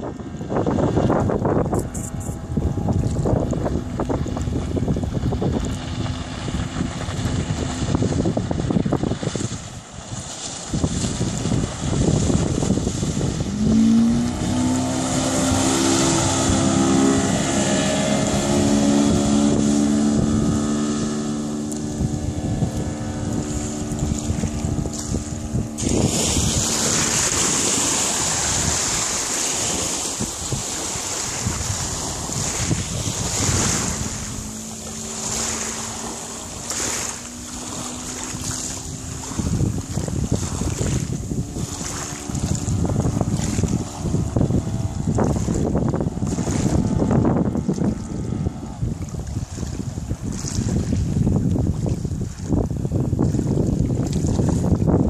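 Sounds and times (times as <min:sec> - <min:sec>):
outboard motor running: 0:00.0 - 0:55.0
wind buffeting microphone: 0:00.0 - 0:55.0
water hissing along hull: 0:21.8 - 0:47.8.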